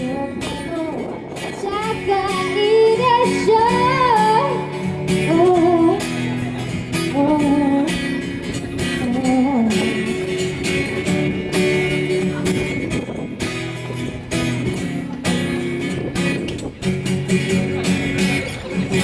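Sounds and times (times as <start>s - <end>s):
woman singing: 0.0s - 6.4s, 7.0s - 10.2s
acoustic guitar strumming: 0.0s - 19.0s.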